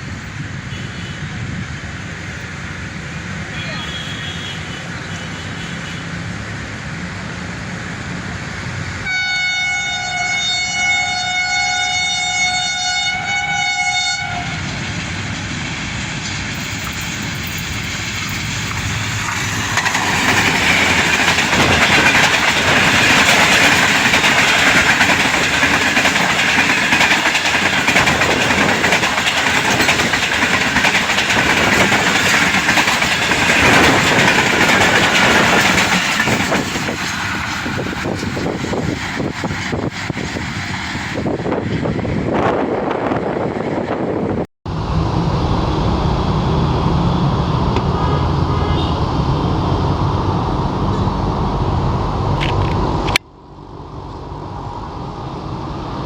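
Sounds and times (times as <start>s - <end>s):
train wheel and rail noise: 0.0s - 56.0s
locomotive horn blast: 3.6s - 6.2s, 9.0s - 14.8s, 47.8s - 49.3s
locomotive engine rumble: 14.5s - 56.0s.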